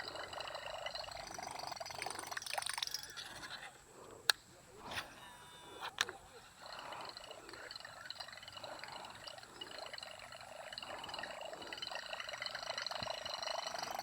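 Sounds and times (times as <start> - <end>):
water trickling: 0.0 - 3.3, 6.6 - 14.0.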